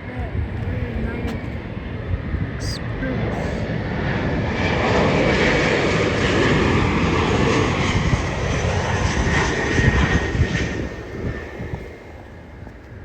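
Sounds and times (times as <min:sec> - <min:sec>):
jet engines roaring and whining: 0:00.0 - 0:13.0.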